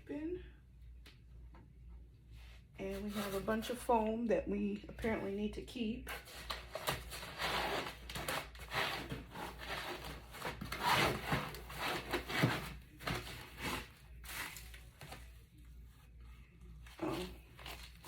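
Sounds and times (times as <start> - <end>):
foam packing rubbing and scraping: 6.1 - 14.6.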